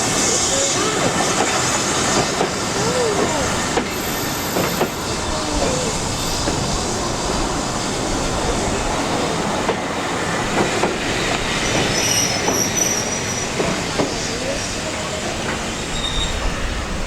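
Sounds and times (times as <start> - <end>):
train rumbling on track: 0.0 - 17.0
high wheel squeal: 0.1 - 9.2, 11.5 - 14.7, 15.7 - 16.8
train wheels knocking: 0.9 - 12.7.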